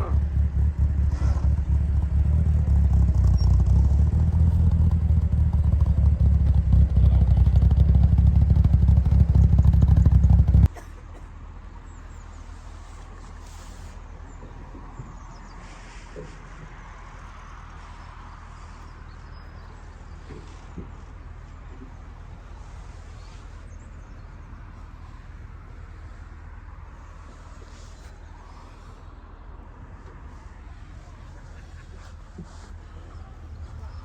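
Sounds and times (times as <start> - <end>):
car engine rumbling: 0.0 - 10.7, 16.2 - 34.0
low hum: 0.0 - 10.7.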